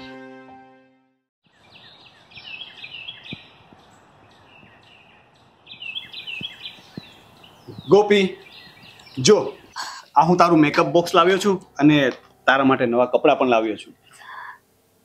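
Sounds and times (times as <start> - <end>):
background music: 0.0 - 1.2, 10.1 - 14.1
small birds chirping: 1.4 - 11.0, 13.9 - 14.6
steady low hiss: 1.6 - 15.0.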